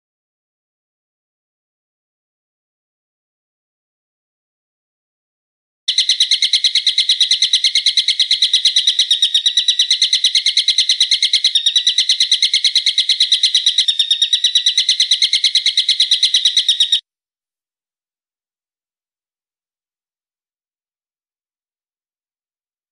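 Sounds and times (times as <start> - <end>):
bird call with sharp high notes: 5.9 - 17.0.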